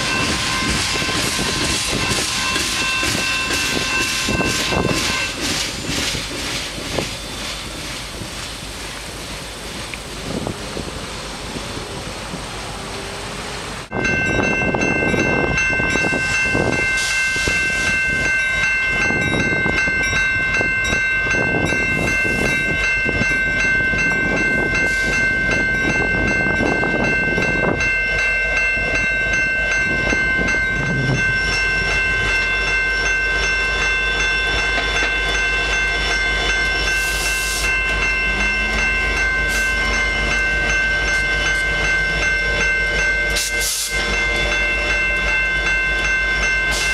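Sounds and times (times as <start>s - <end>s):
steady high ringing tones: 0.0s - 8.0s, 13.9s - 46.9s
train wheels rumbling on rails: 0.0s - 46.9s.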